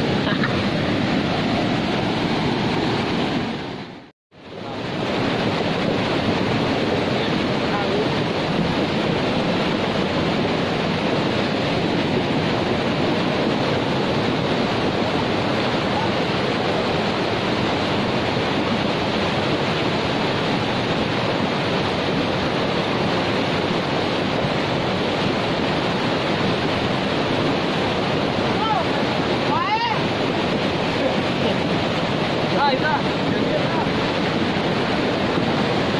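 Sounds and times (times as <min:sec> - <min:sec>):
rushing floodwater: 0:00.0 - 0:35.9.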